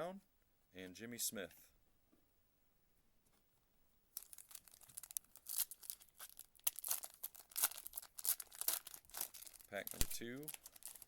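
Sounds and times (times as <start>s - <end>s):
foil wrapper tearing and crinkling: 4.2s - 11.0s.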